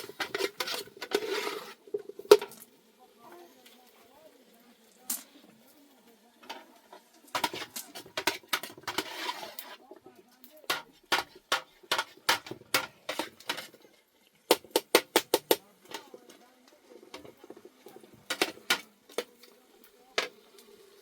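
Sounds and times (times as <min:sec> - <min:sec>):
knocks and clatters of utensils: 0:00.0 - 0:02.7, 0:06.4 - 0:09.8, 0:10.4 - 0:20.5.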